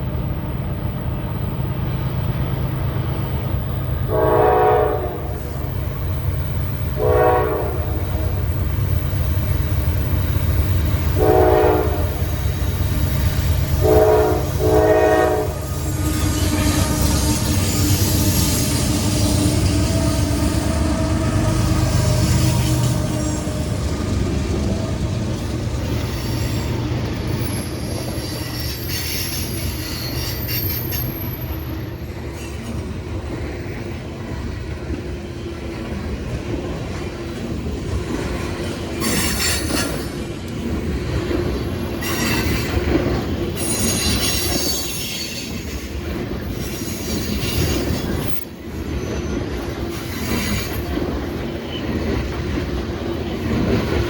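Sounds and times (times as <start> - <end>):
train wheels rumbling on rail: 0.0 - 54.0
high-pitched wheel squeal: 27.4 - 31.6, 43.6 - 45.7.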